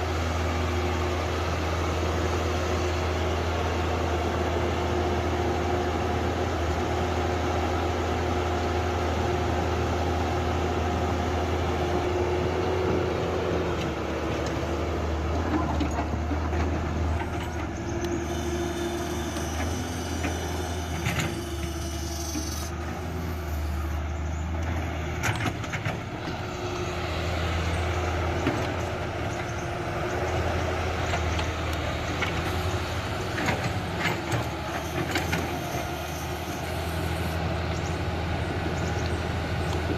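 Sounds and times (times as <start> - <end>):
excavator diesel engine running: 0.0 - 39.9
high-pitched squeal: 18.0 - 24.0, 34.7 - 37.4.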